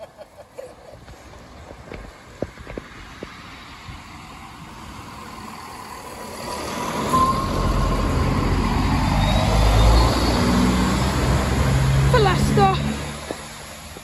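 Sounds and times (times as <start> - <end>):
diesel train rumbling: 1.1 - 14.0
thin high whine: 6.5 - 10.3.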